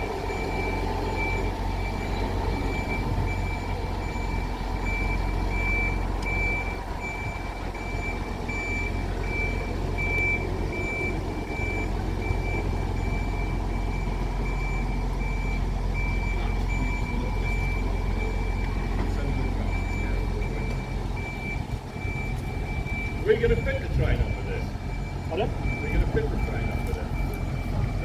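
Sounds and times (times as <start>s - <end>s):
low steady rumble: 0.0s - 28.0s
reversing alarm beeping: 0.0s - 28.0s.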